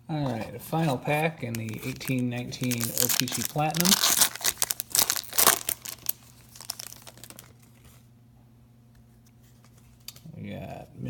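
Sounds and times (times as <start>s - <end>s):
faint steady hum: 0.0s - 11.0s
wrapper rustling: 0.7s - 7.9s
card pack wrapper tearing: 0.8s - 7.7s.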